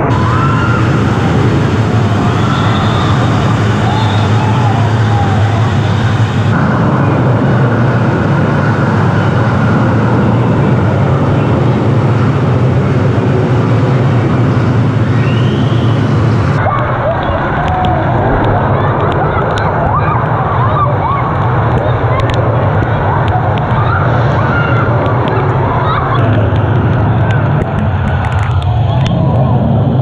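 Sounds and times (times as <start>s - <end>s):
fast-flowing water rushing: 0.0s - 6.7s
distant shouts: 0.0s - 27.6s.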